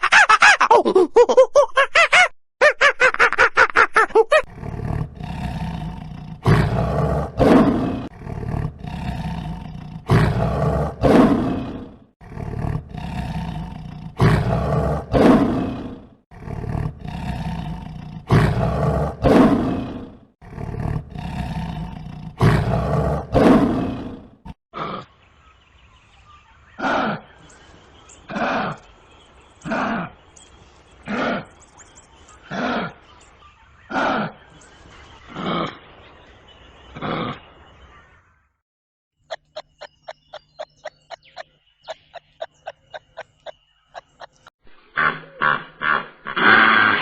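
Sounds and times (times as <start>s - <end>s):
lion roaring: 4.5s - 25.1s.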